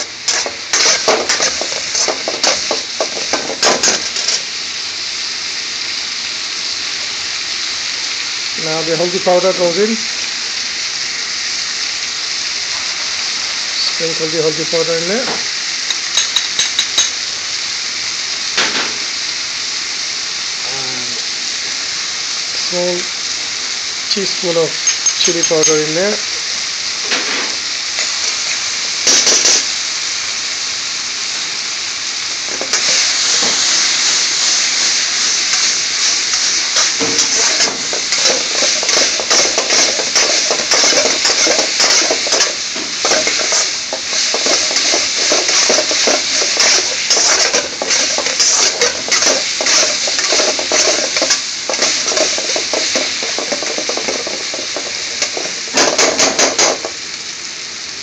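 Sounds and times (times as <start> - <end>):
onions sizzling in hot oil: 0.0 - 58.0
metal spoon scraping a wok: 0.2 - 4.4, 36.8 - 56.9.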